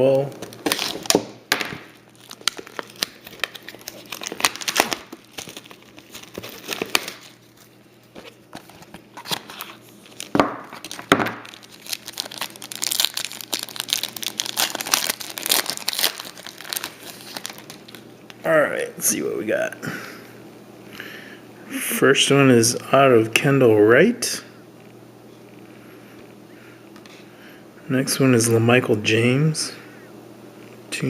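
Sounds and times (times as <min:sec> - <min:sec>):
plastic wrapper crinkling and tearing: 0:00.1 - 0:18.4.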